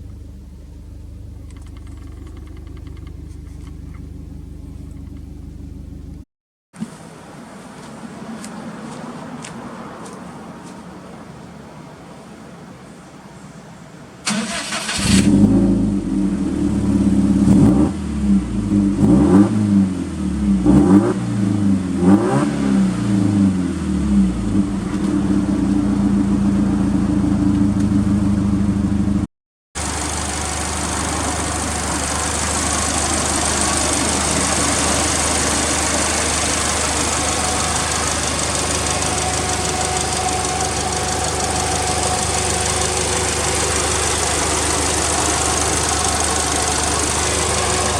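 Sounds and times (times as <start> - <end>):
car engine idling: 0.0 - 6.2, 14.3 - 19.1, 23.6 - 29.2, 29.8 - 47.9
car engine starting and revving: 0.0 - 6.2, 14.2 - 47.9.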